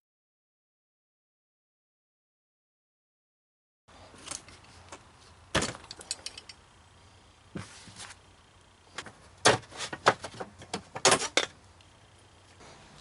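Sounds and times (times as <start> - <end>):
metal tools clinking: 5.7 - 6.6.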